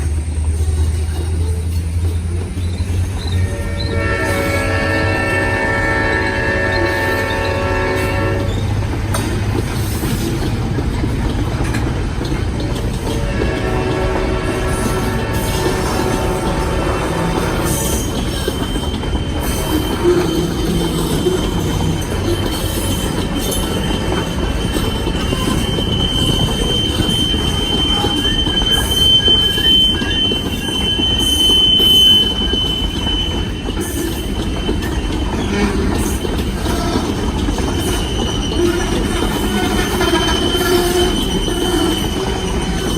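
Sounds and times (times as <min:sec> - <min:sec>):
train rumbling and rattling past: 0:00.0 - 0:42.9
high-pitched wheel squeal: 0:02.6 - 0:08.6, 0:14.4 - 0:42.9
train horn chord: 0:03.4 - 0:08.6, 0:13.1 - 0:18.3.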